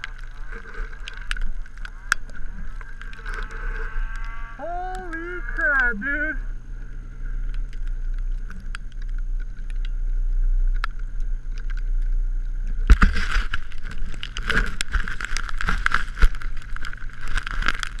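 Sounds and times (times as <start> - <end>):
rough clattering with sharp clicks: 0.0 - 4.4
snowmobile engine running: 0.0 - 8.2.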